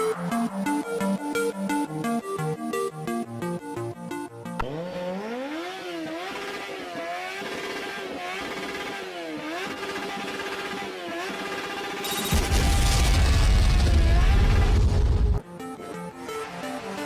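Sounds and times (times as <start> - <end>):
dirt bike engine revving: 4.6 - 12.3.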